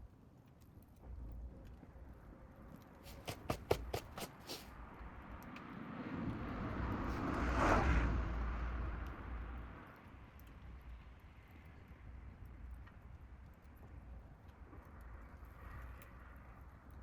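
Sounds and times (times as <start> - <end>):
sharp pops: 3.1 - 4.6.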